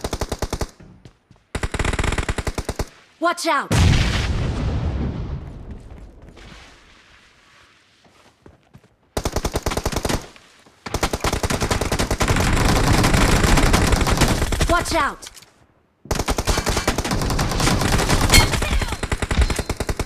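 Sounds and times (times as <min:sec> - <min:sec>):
video game automatic gunfire: 0:01.5 - 0:02.9, 0:10.9 - 0:14.9, 0:16.1 - 0:20.0.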